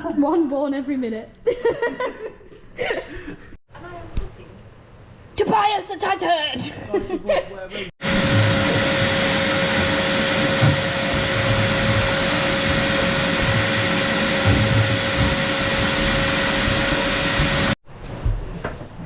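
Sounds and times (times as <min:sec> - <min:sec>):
vacuum cleaner motor whine: 0:08.0 - 0:17.8.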